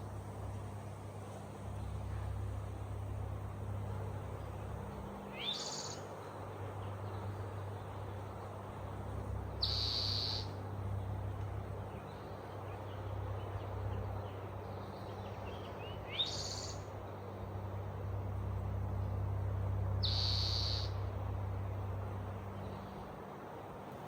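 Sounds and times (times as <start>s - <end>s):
outdoor background noise: 0.0s - 24.0s
birds calling: 9.6s - 10.6s, 20.0s - 21.0s.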